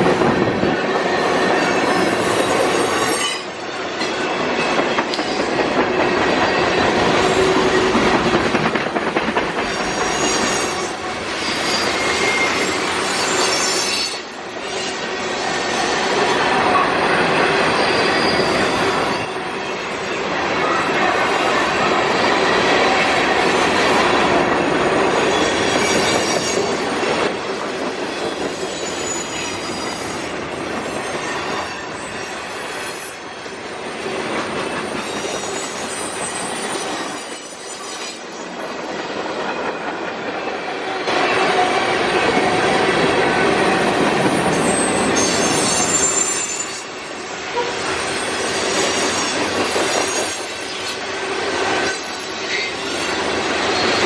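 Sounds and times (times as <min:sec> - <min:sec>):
train wheels clattering on rails: 0:00.0 - 0:54.0
high-pitched wheel squeal: 0:09.8 - 0:15.0, 0:16.7 - 0:20.8, 0:28.4 - 0:33.1, 0:44.4 - 0:46.9.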